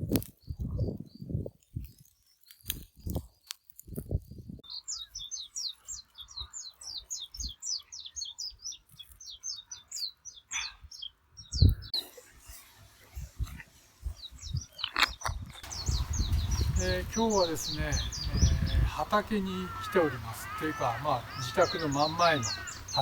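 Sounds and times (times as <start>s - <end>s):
bird chirping: 4.4s - 23.0s
soft low thumps: 15.6s - 19.0s.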